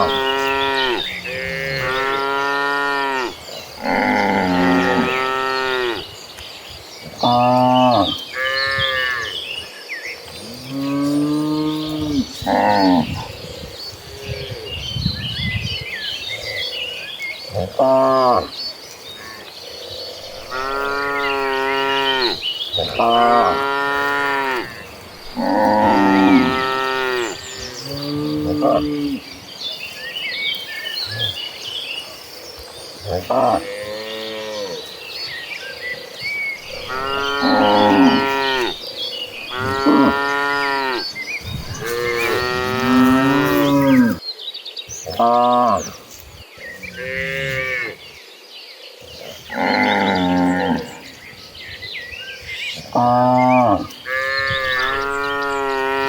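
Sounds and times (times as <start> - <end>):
cattle mooing: 20.2 - 29.2, 36.7 - 38.8, 39.4 - 44.2, 53.0 - 56.0.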